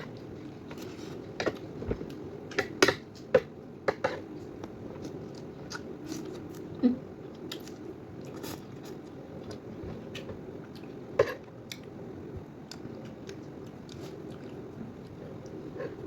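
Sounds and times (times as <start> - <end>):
person chewing and eating: 4.2 - 11.9, 12.6 - 16.0.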